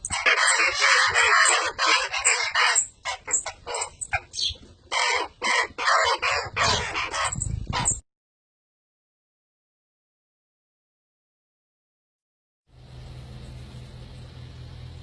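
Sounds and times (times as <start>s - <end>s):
baby birds squawking: 0.0s - 8.0s.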